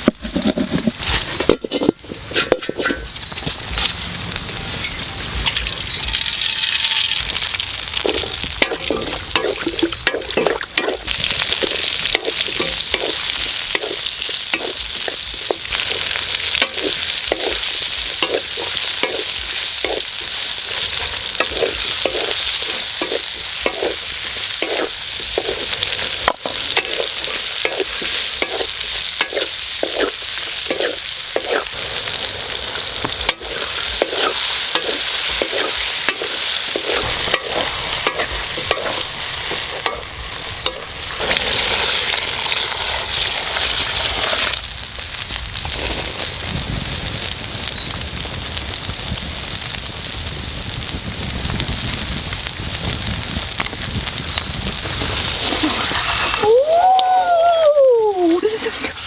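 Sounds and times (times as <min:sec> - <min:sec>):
utensil scraping a pan: 0:00.0 - 0:04.1, 0:08.0 - 0:44.6, 0:54.9 - 0:56.5, 0:58.4 - 0:59.0
food sizzling in a pan: 0:00.3 - 0:59.0.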